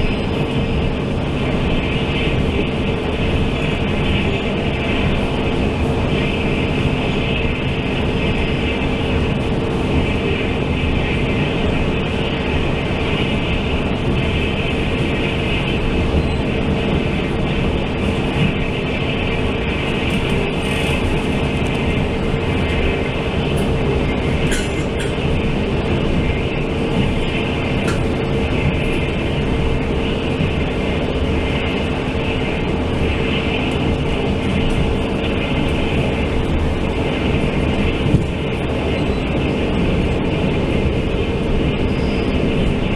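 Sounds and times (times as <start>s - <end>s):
steady hum: 0.0s - 42.9s
train wheels and car rumble: 0.0s - 42.9s.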